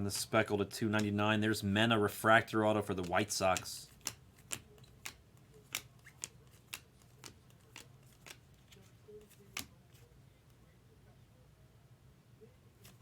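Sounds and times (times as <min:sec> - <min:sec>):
trading cards flicking: 0:02.9 - 0:10.1.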